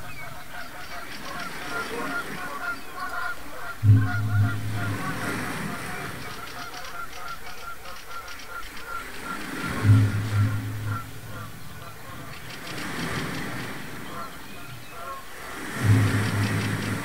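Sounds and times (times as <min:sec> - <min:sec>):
honking bird calls: 0:00.0 - 0:17.0
low steady drone: 0:03.8 - 0:06.4, 0:09.7 - 0:12.5, 0:15.8 - 0:17.0.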